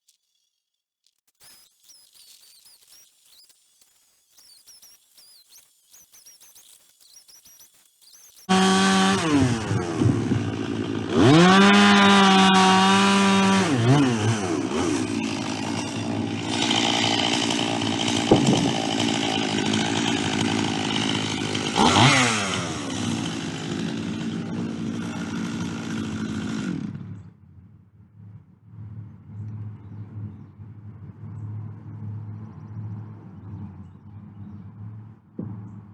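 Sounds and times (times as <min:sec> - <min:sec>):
chainsaw cutting log: 0:08.4 - 0:27.3.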